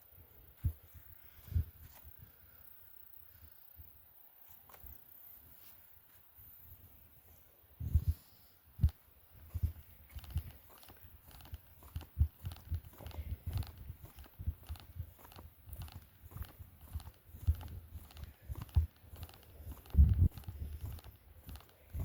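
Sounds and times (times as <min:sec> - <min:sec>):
footsteps on dirt trail: 0:08.8 - 0:22.0.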